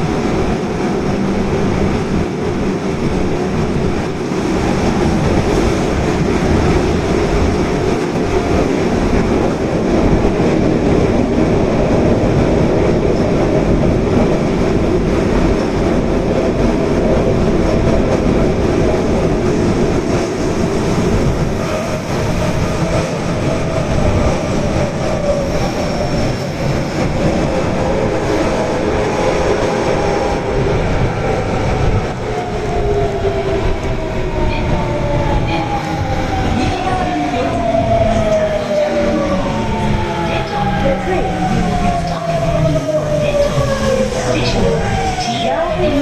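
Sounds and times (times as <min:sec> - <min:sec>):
wheels rumbling on rail: 0:00.0 - 0:46.0.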